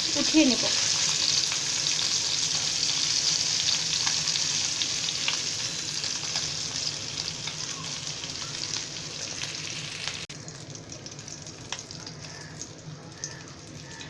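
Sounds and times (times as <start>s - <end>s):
fish sizzling in hot oil: 0.0s - 14.0s.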